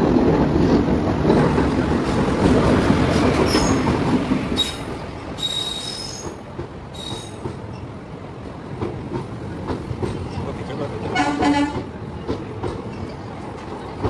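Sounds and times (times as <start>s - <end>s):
electric locomotive rumbling: 0.0s - 14.0s
train coaches rolling by: 0.0s - 14.0s
high-pitched wheel squeals: 5.4s - 6.4s.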